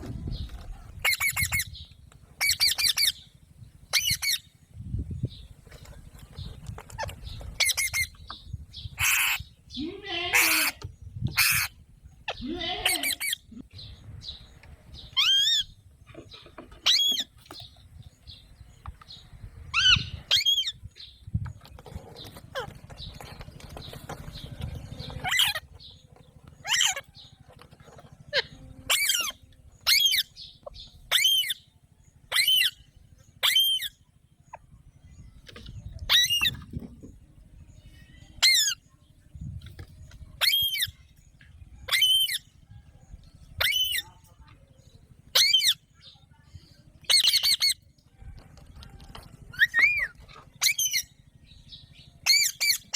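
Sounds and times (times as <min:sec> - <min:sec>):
parakeet calling: 0:01.0 - 0:01.8, 0:03.9 - 0:04.5, 0:08.8 - 0:13.6, 0:25.0 - 0:25.7, 0:28.3 - 0:31.6, 0:45.3 - 0:45.8, 0:52.2 - 0:52.9.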